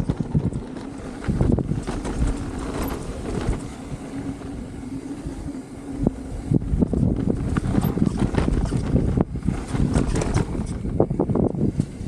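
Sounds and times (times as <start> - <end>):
knocks and rattles: 0.0 - 3.7, 7.0 - 11.0
wind buffeting microphone: 0.0 - 12.0.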